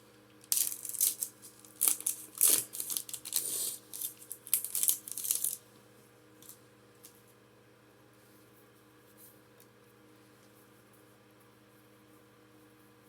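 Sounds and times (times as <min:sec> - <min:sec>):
foil pack crinkling and tearing: 0:00.4 - 0:05.6.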